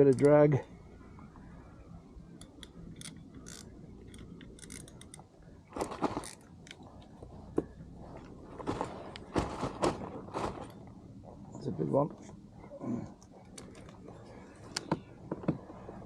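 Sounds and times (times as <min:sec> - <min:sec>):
fishing reel clicking: 0:02.4 - 0:05.2.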